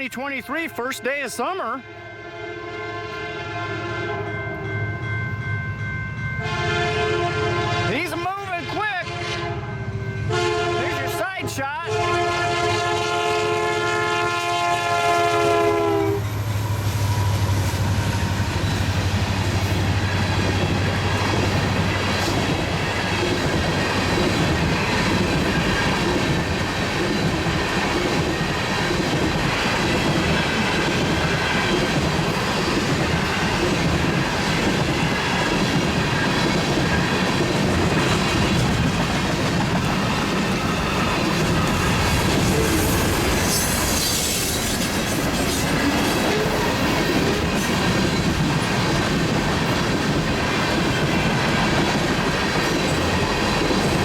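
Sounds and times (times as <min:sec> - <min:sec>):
train horn chord: 0:00.6 - 0:05.1, 0:06.4 - 0:16.4
train wheels clattering: 0:17.4 - 0:54.0.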